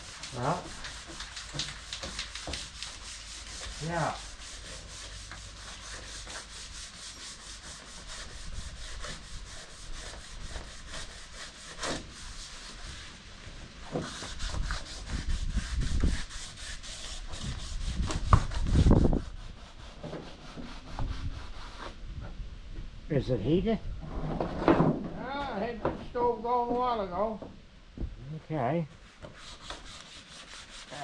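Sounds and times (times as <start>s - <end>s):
sandpaper rubbing by hand: 0.0s - 13.2s, 13.8s - 22.0s, 29.0s - 31.0s.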